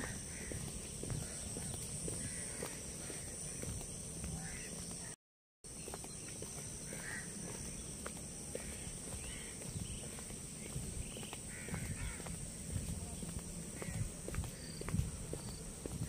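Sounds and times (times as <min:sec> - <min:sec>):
birds calling: 0:00.0 - 0:16.0
steady high hiss: 0:05.7 - 0:16.0.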